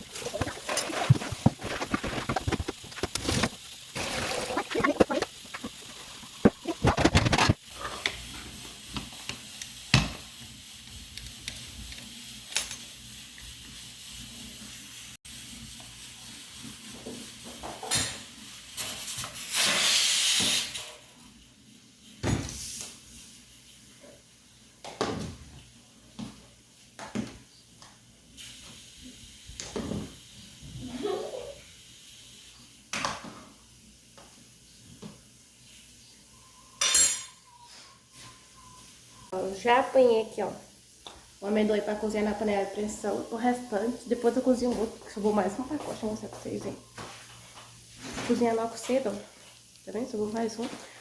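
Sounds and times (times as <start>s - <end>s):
pots and utensils clinking: 0.0s - 8.2s, 36.8s - 37.5s
steady kitchen hiss: 0.0s - 51.0s.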